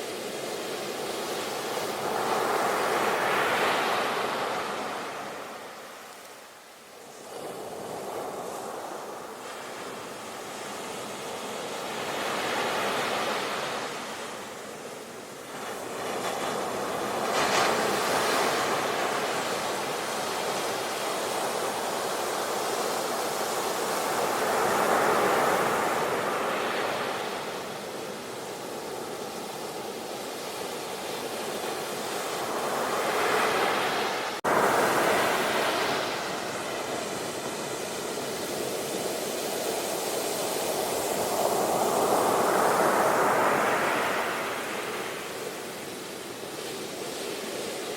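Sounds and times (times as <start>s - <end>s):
ocean waves breaking: 30.7s - 47.7s.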